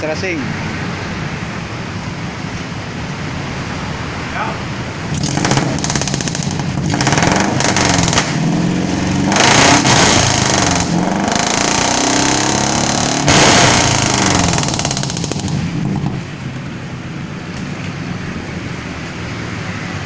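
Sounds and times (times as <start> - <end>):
truck engine revving: 4.9 - 16.9.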